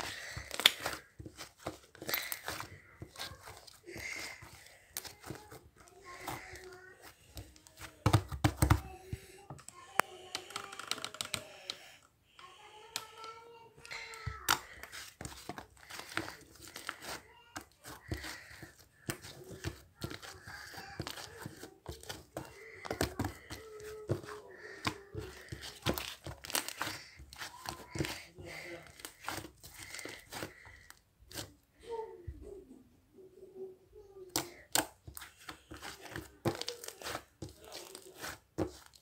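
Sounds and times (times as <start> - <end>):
slime squished by hand: 34.3 - 39.0.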